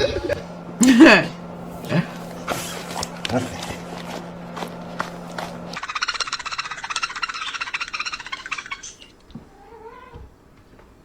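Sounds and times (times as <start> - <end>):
cat rattling call: 5.8 - 10.2
cat meowing softly: 9.4 - 10.3.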